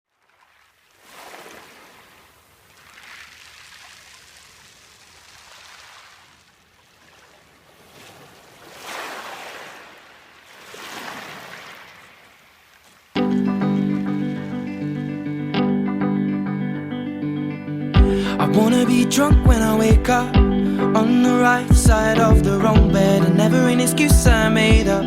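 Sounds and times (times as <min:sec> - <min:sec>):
ocean surf washing in: 0:00.8 - 0:12.6.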